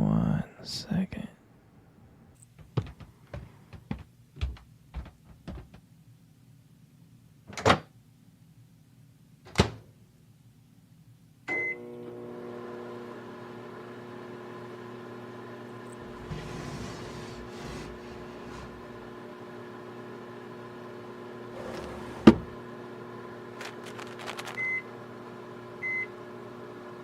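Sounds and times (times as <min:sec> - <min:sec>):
microwave oven humming: 0:11.4 - 0:27.0
microwave beep: 0:11.5 - 0:12.0, 0:24.5 - 0:25.0, 0:25.8 - 0:26.2.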